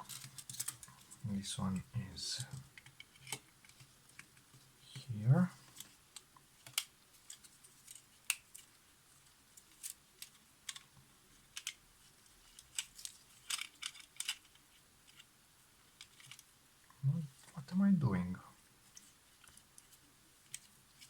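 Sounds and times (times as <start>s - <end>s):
small parts clicking: 0.0s - 0.9s, 2.4s - 4.5s, 11.5s - 11.8s, 12.4s - 15.3s, 16.0s - 16.5s.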